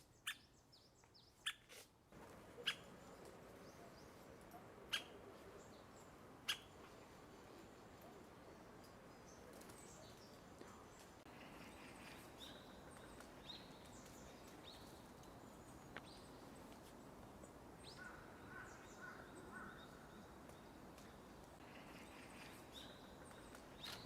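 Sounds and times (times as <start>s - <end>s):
faint bird calls: 2.4s - 8.6s, 17.8s - 20.2s.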